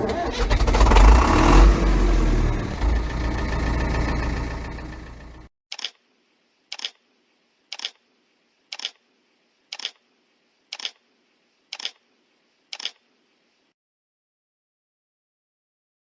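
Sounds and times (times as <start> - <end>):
camera shutter double clicks: 5.7 - 6.0, 6.7 - 7.0, 7.7 - 8.0, 8.7 - 9.0, 9.7 - 10.0, 10.7 - 11.0, 11.7 - 12.0, 12.8 - 13.0.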